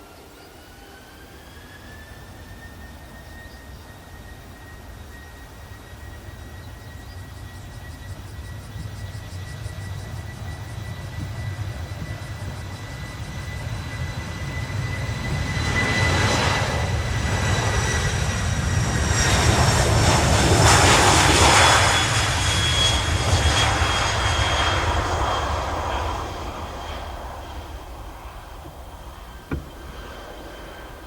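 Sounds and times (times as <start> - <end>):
jet engines passing: 0.0 - 31.0.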